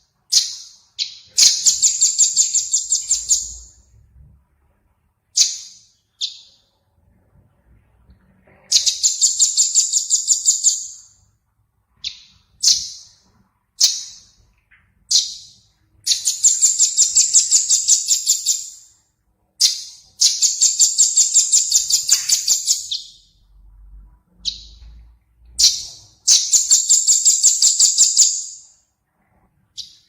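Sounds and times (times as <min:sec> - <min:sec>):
songbird trilling: 0:00.3 - 0:03.7, 0:05.4 - 0:06.6, 0:08.7 - 0:11.0, 0:19.6 - 0:23.2.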